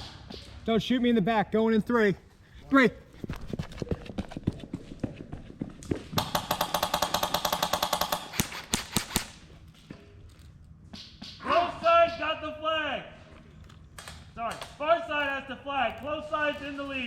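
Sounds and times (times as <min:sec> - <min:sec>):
airsoft gunfire: 0:06.2 - 0:09.5.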